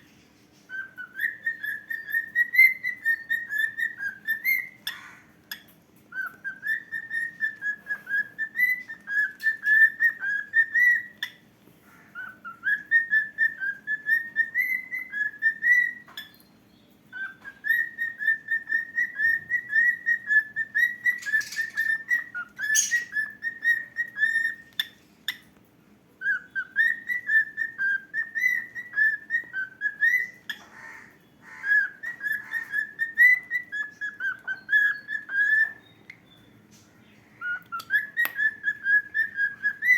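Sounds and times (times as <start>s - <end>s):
cockatiel whistling: 0.7s - 5.0s, 6.1s - 11.4s, 12.2s - 16.3s, 17.1s - 25.4s, 26.2s - 30.6s, 31.6s - 36.2s, 37.4s - 39.9s.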